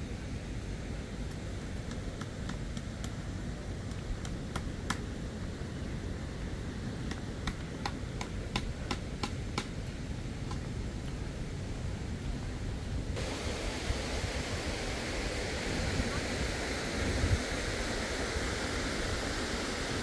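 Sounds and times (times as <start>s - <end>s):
river water rushing: 13.2s - 20.0s.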